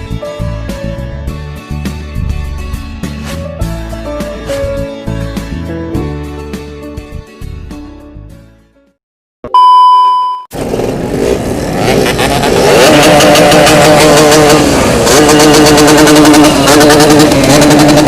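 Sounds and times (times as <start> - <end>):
music: 0.0 - 9.0
loud steady beep: 9.5 - 10.5
two-stroke motorcycle engine: 10.5 - 18.0.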